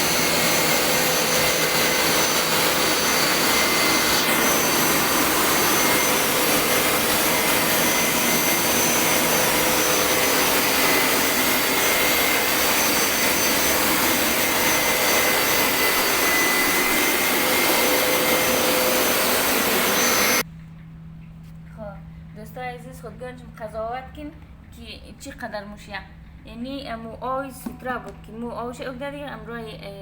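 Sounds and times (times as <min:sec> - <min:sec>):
carpet-washing machine suction rushing: 0:00.0 - 0:20.4
motor whine: 0:00.0 - 0:20.4.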